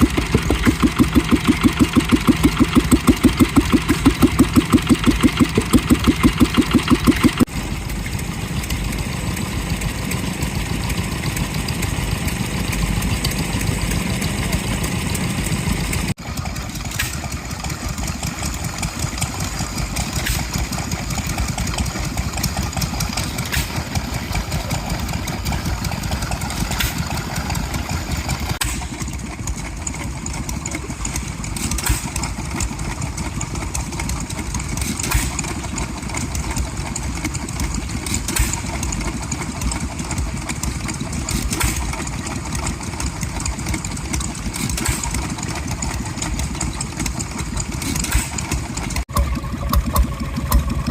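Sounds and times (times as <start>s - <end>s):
stationary engine running: 0.0s - 50.9s.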